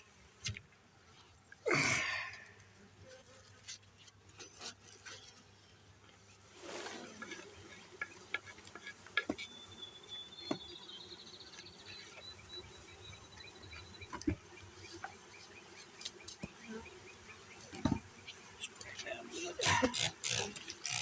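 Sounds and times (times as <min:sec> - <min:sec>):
honeybees buzzing: 0:06.5 - 0:21.0.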